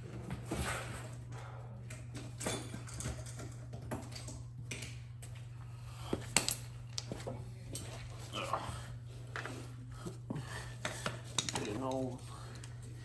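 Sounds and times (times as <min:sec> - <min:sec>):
steady low hum: 0:00.0 - 0:13.0
hand tools and metal parts clicking: 0:10.8 - 0:12.7.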